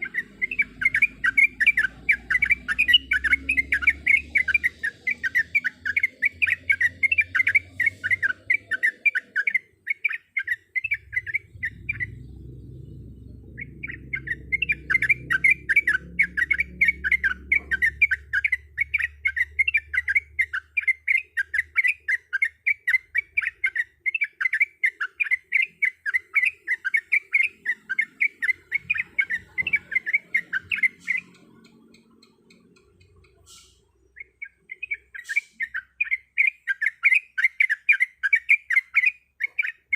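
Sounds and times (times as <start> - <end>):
bird chattering song: 0.0 - 39.9
low rumble: 11.2 - 17.9.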